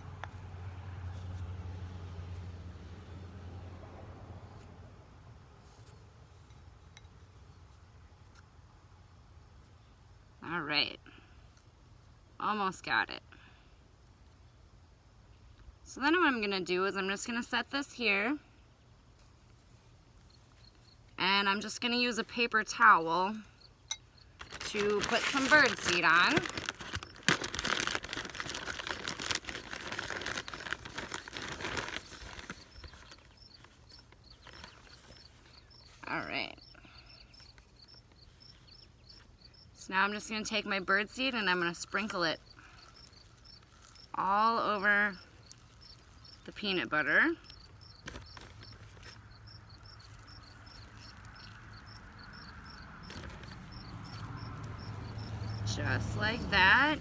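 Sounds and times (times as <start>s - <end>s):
low outdoor rumble: 0.0s - 13.9s, 14.6s - 57.0s
cricket chirping: 23.3s - 24.8s, 31.9s - 39.8s, 42.4s - 44.2s, 45.1s - 46.5s, 47.4s - 55.7s
birdseed being shaken: 24.4s - 36.0s
paper towel crinkling: 24.4s - 36.0s.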